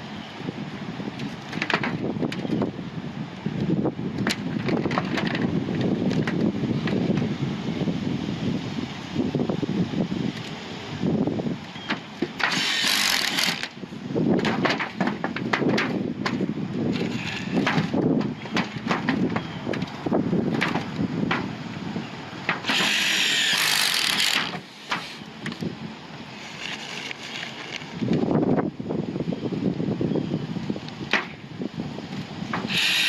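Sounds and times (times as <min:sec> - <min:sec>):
high hiss bursts: 0:32.6 - 0:33.0.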